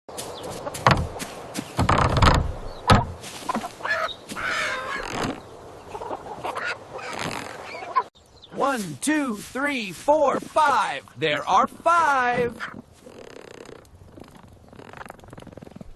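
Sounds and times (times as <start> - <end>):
heavy thumps: 0.8 - 3.2
chickens squawking and clucking: 2.7 - 8.1, 12.4 - 12.9.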